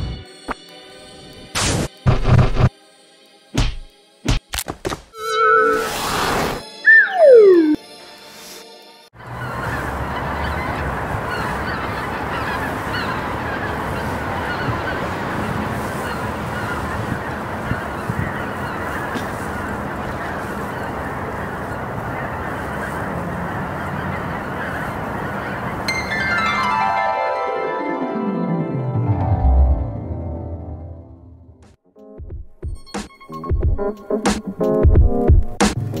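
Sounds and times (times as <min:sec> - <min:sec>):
music with falling notes: 0:05.1 - 0:07.9, 0:25.9 - 0:36.0
flock of geese honking: 0:09.2 - 0:27.0.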